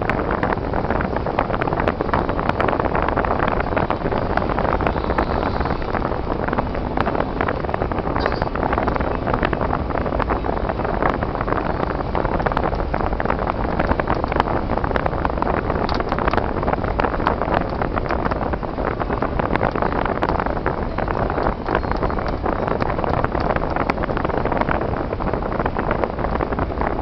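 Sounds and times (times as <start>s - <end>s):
car road and engine noise: 0.0s - 27.0s
small clicks and crackles: 10.2s - 27.0s.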